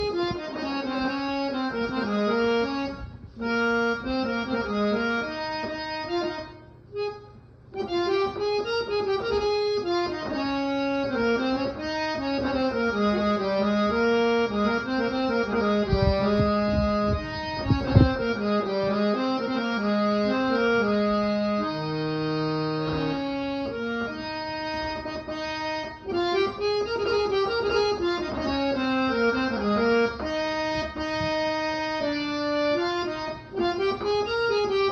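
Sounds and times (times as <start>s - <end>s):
reedy keyboard melody: 0.0s - 34.9s
low thumps: 11.5s - 20.4s.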